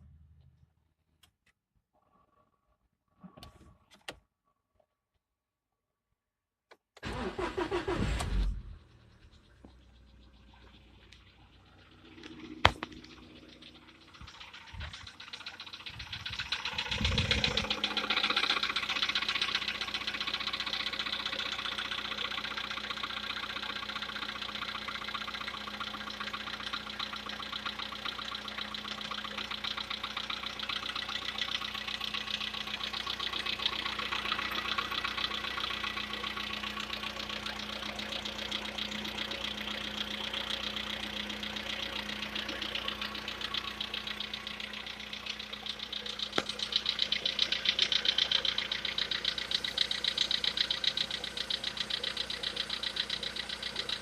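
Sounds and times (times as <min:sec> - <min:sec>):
car engine knocking: 0:08.8 - 0:54.0
click: 0:46.3 - 0:46.6.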